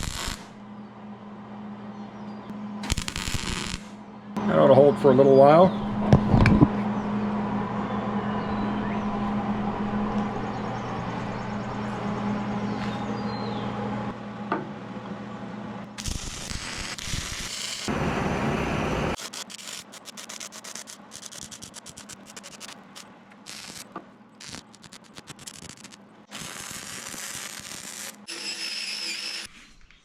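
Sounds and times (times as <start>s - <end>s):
arc welding hiss: 0.0s - 0.5s, 2.8s - 4.0s, 16.0s - 29.4s
welding crackling and clicking: 0.0s - 0.5s, 2.8s - 4.0s, 16.0s - 17.9s, 19.2s - 28.6s
welder hum: 0.0s - 0.6s, 2.8s - 14.2s, 15.9s - 29.9s.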